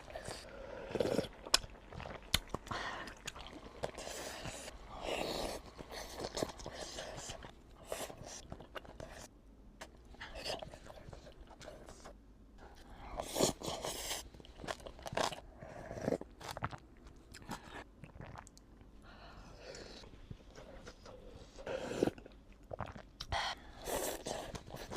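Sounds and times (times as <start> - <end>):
person chewing crunchy food: 13.2 - 18.7.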